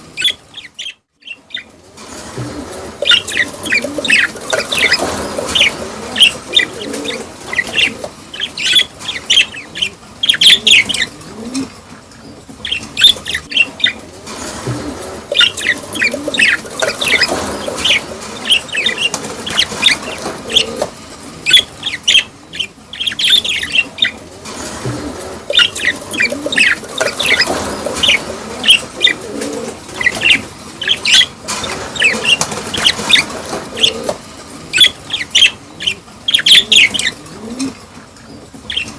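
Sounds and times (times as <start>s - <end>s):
budgerigars chattering and chirping: 0.1s - 1.7s, 2.4s - 37.4s, 38.0s - 38.9s.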